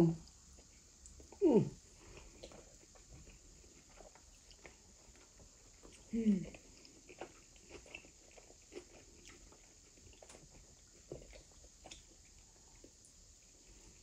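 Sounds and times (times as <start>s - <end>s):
mouth clicks and chewing smacks: 2.0s - 13.0s.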